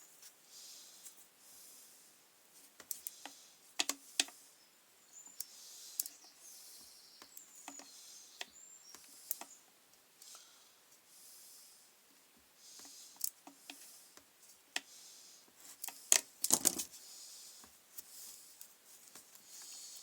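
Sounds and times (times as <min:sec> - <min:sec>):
sharp clicks and taps: 0:02.8 - 0:04.4.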